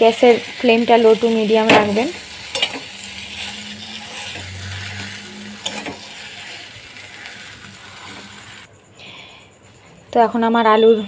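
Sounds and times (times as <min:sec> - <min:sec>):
food sizzling in a pan: 0:00.0 - 0:08.7
metal spatula scraping a pan: 0:00.0 - 0:08.7.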